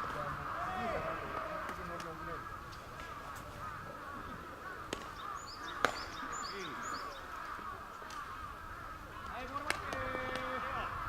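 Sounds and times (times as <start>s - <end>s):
bird calls chattering: 0.0s - 11.0s
sharp crack: 4.8s - 6.7s, 9.1s - 10.7s.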